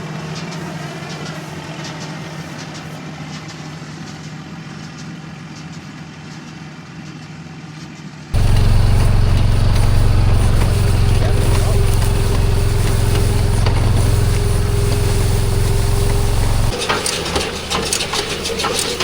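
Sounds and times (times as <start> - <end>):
engine humming: 8.4 - 19.0
loud deep engine drone: 8.4 - 19.0.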